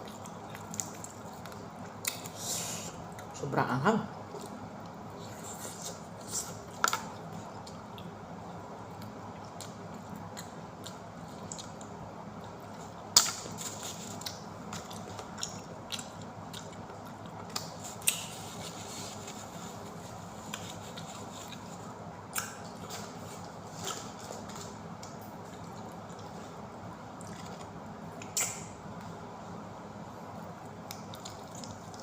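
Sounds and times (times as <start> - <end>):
low background hum: 0.0 - 32.0
person chewing crunchy food: 8.8 - 28.7.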